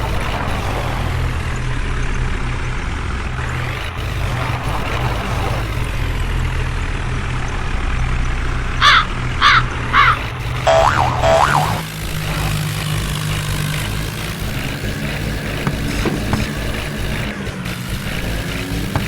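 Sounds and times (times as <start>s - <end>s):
diesel engine rumbling: 0.0s - 19.0s
warbling electronic boing effects: 10.0s - 11.8s.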